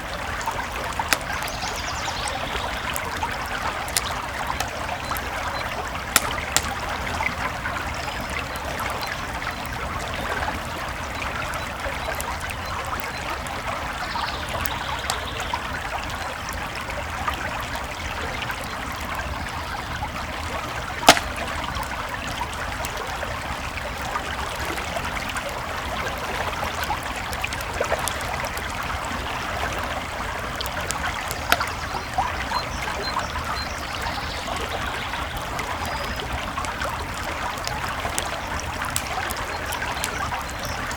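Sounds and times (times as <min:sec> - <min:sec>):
campfire crackling: 0:00.0 - 0:40.9
creek babbling: 0:00.0 - 0:40.9
sharp pops from fire: 0:00.5 - 0:09.1, 0:20.9 - 0:21.9, 0:26.6 - 0:32.6, 0:35.3 - 0:40.9.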